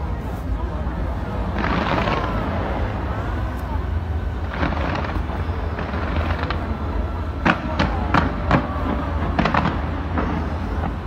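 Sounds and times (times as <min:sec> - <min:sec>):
fireworks rumble of bursts: 0:00.0 - 0:11.0
sharp firework bangs: 0:01.5 - 0:03.6, 0:04.4 - 0:11.0.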